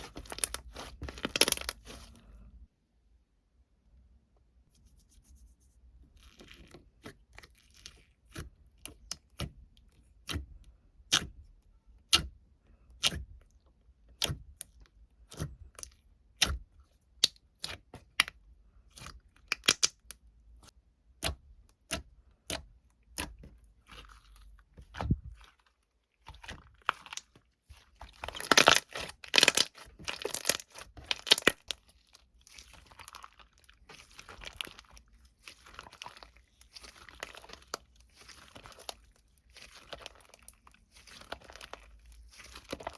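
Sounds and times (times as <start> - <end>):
dense crinkling and rustling: 0.0 - 2.6, 23.4 - 42.9.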